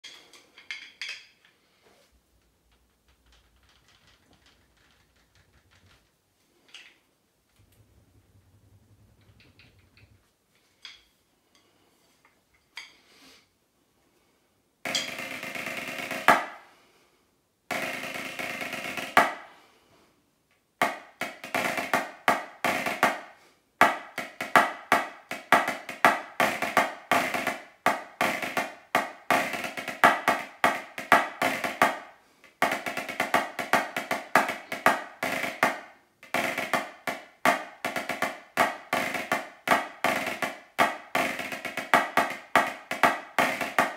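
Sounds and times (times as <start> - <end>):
drumsticks on practice pad: 14.9 - 16.6, 20.8 - 43.9.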